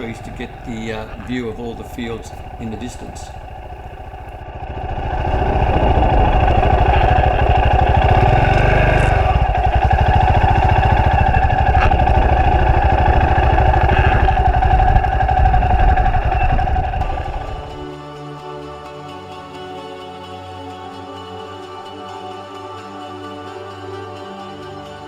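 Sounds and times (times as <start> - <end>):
motorcycle engine running steadily: 0.0 - 17.8.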